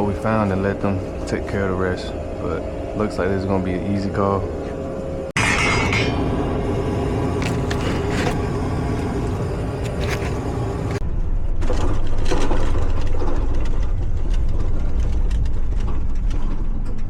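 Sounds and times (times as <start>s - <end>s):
moving vehicle rumble: 0.0s - 17.0s
small clicks and rattles: 11.6s - 17.0s.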